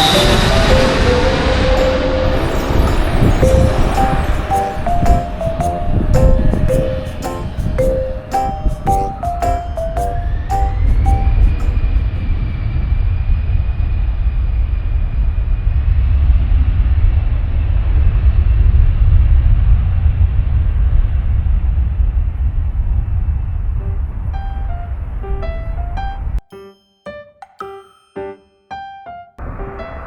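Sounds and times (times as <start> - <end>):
jet engines rumbling: 0.0 - 9.2.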